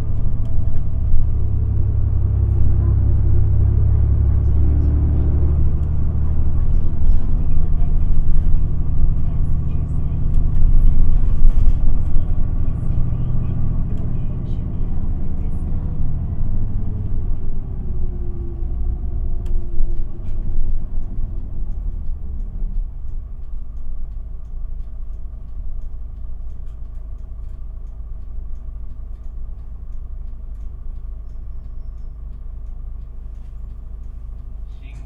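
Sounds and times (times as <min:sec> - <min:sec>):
bus engine slowing and idling: 0:00.0 - 0:35.0
faint regular ticking: 0:17.3 - 0:35.0.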